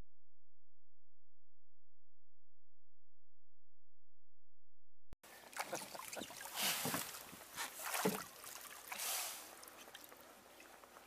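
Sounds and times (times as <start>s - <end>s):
water splashing around a boat: 5.3s - 11.0s.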